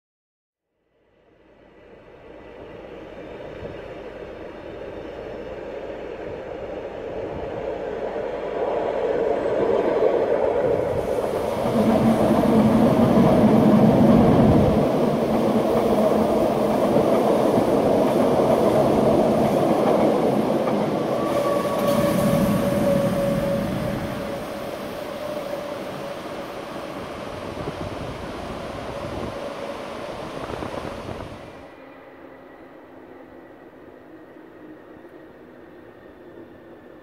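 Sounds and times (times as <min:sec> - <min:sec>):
train rumbling on rails: 0:01.0 - 0:37.0
high wheel squeal: 0:21.0 - 0:26.6.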